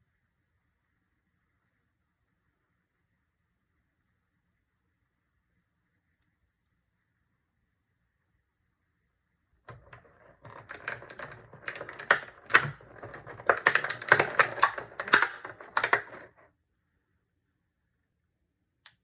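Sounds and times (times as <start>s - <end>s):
plastic toy pieces clicking: 9.7s - 16.4s.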